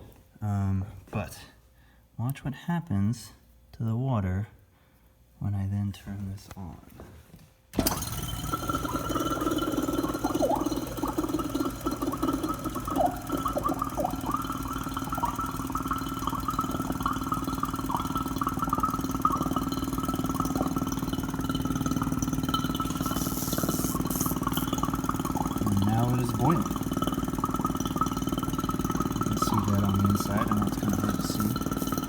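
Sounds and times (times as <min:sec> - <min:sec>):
electric vacuum pump pulsing: 0:07.8 - 0:32.0
gurgling: 0:07.8 - 0:32.0.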